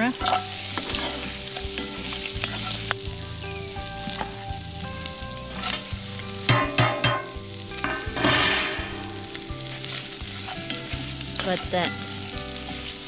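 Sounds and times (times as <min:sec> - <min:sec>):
sausage and onions sizzling: 0:00.0 - 0:13.0
metallic knocks of metal plate: 0:06.5 - 0:08.8.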